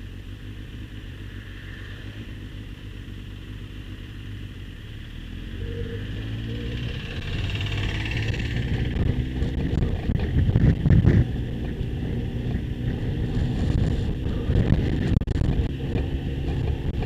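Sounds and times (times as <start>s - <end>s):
motorcycle engine running: 0.0s - 17.0s
wind noise on microphone: 6.8s - 17.0s.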